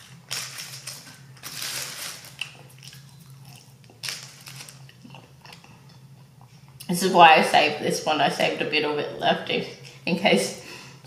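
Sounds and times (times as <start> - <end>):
paper wrapper crinkling: 0.0 - 3.1, 4.0 - 5.0
chewing fries: 0.0 - 6.9.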